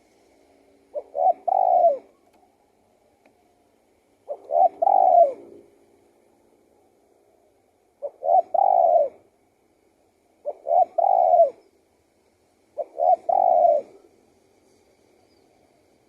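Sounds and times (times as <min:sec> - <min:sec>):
dove cooing: 0:00.9 - 0:02.6, 0:04.2 - 0:05.7, 0:07.2 - 0:09.4, 0:10.4 - 0:11.7, 0:12.7 - 0:14.2.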